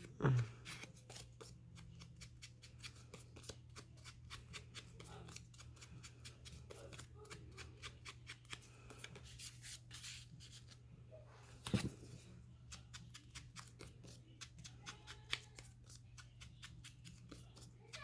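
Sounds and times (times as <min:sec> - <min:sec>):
paper rustling: 0:11.5 - 0:12.3.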